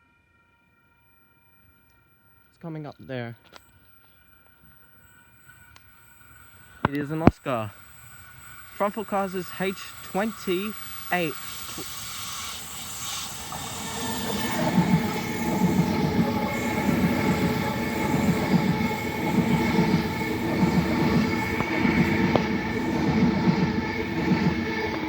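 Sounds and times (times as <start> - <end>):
electric train whine: 0.0 - 25.0
train wheels clattering: 8.8 - 25.0.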